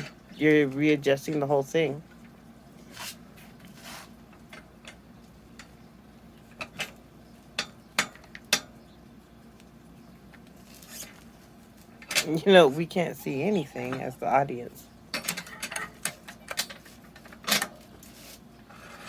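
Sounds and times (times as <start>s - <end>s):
rubbing and scraping: 2.8s - 4.6s, 10.5s - 11.3s, 15.2s - 19.0s.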